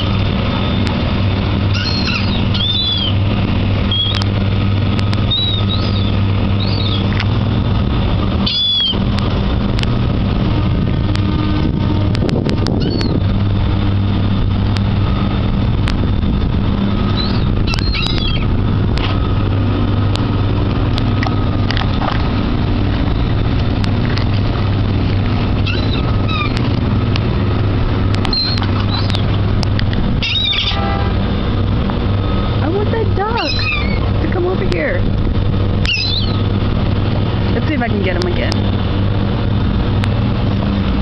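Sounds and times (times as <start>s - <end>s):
seagulls calling: 0.0s - 7.6s, 8.3s - 9.1s, 12.7s - 13.4s, 16.8s - 18.6s, 24.6s - 31.3s, 32.2s - 37.3s
boat engine idling: 0.0s - 41.0s.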